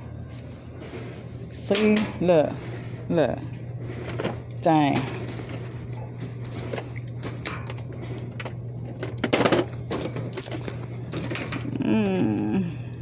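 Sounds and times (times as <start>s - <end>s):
steady low hum: 0.0s - 13.0s
clatter of things being handled: 3.5s - 11.8s.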